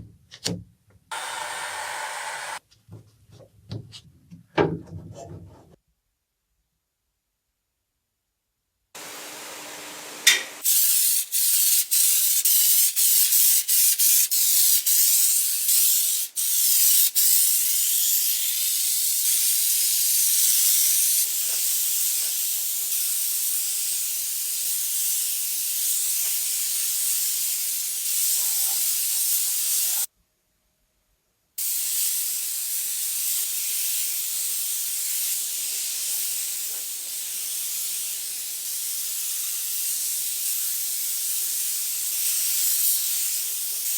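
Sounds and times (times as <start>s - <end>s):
spray gun hissing: 1.1s - 2.6s, 9.0s - 30.1s, 31.6s - 43.9s.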